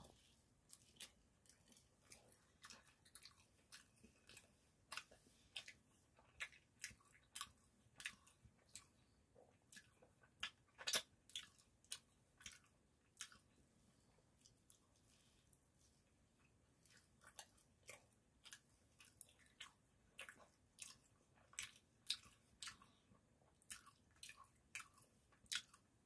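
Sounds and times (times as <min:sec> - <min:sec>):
wet mouth clicks and smacks: 0:09.6 - 0:13.5.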